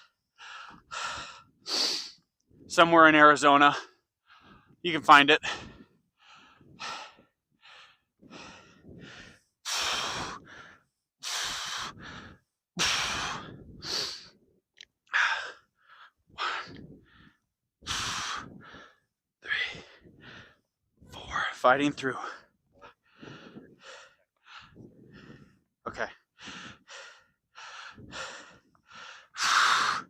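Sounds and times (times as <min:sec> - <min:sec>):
man exhaling forcefully: 0:11.3 - 0:14.3, 0:29.4 - 0:30.0.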